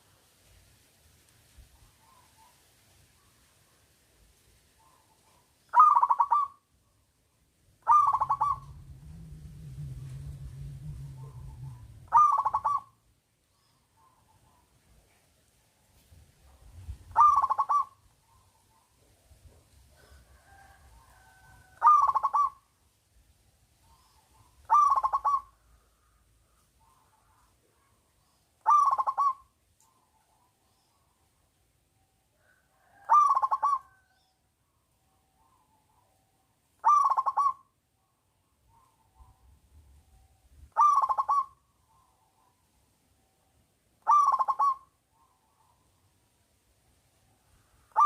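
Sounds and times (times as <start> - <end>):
dove cooing: 4.8 - 6.6, 7.8 - 13.1, 16.8 - 18.8, 20.0 - 22.7, 23.8 - 26.2, 28.6 - 31.0, 32.4 - 34.2, 36.8 - 37.7, 40.7 - 42.6, 44.0 - 45.8
low steady hum: 8.0 - 13.8.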